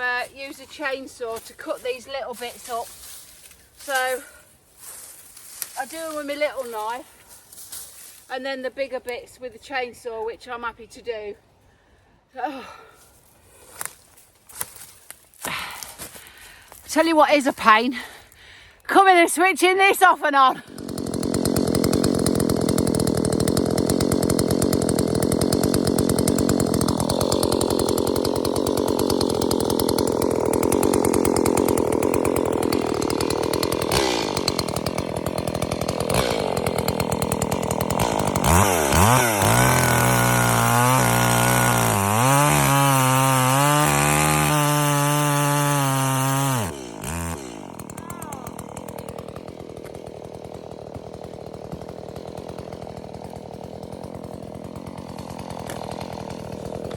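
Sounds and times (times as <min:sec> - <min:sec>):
chainsaw running: 0:00.0 - 0:09.3, 0:12.6 - 0:56.9.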